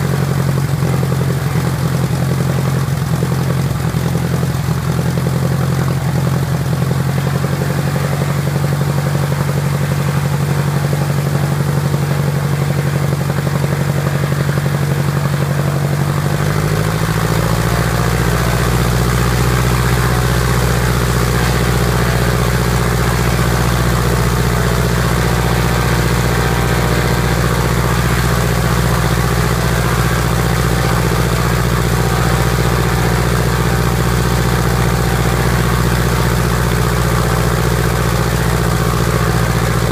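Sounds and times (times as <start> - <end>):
piston aircraft engines running: 0.0 - 39.9.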